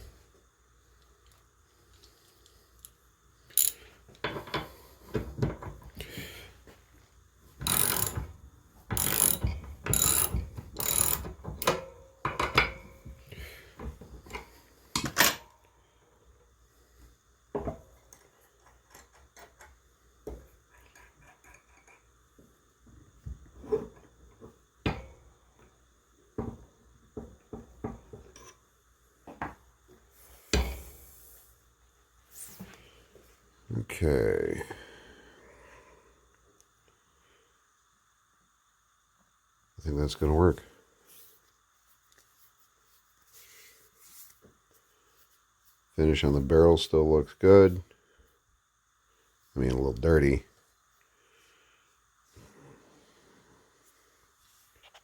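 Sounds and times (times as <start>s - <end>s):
ratchet clicks: 3.5s - 3.8s, 7.6s - 8.2s, 9.0s - 11.8s
metal tools clanking and knocking: 7.6s - 13.0s.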